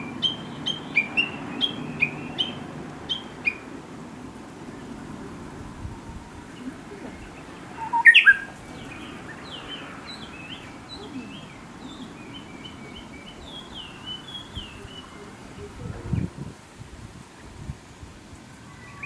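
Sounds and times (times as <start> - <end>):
songbird singing: 0.0 - 16.5, 18.6 - 19.0.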